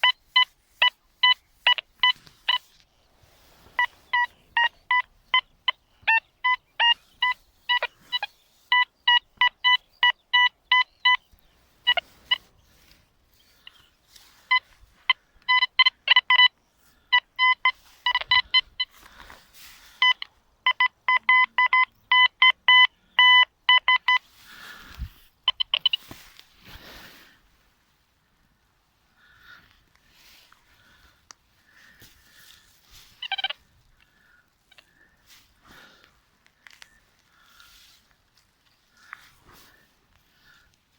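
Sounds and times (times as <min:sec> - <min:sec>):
metal detector beeping: 0:00.0 - 0:02.8, 0:03.6 - 0:27.2, 0:31.9 - 0:33.7
rustle: 0:00.0 - 0:10.0, 0:11.2 - 0:21.7, 0:24.0 - 0:40.9.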